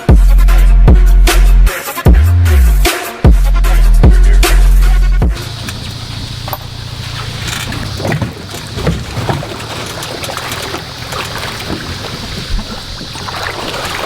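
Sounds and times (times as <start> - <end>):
engine humming: 5.4 - 14.0
short knocks: 5.4 - 14.0
wind noise on microphone: 5.4 - 14.0.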